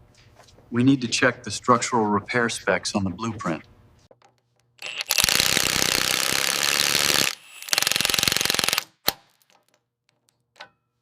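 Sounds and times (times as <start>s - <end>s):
pneumatic air tool hammering: 4.8s - 9.2s.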